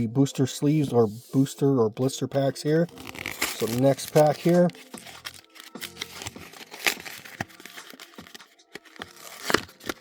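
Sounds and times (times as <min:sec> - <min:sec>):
foil wrapper crinkling and tearing: 0:02.9 - 0:10.0.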